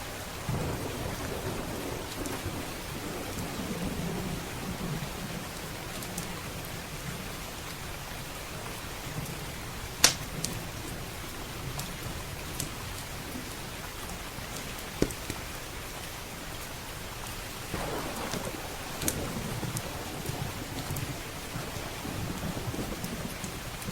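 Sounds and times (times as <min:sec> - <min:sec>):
steady rain: 0:00.0 - 0:23.9
low thunder rumble: 0:00.4 - 0:07.3, 0:17.7 - 0:23.9
wood fire crackling and popping: 0:10.0 - 0:10.6, 0:17.7 - 0:23.9.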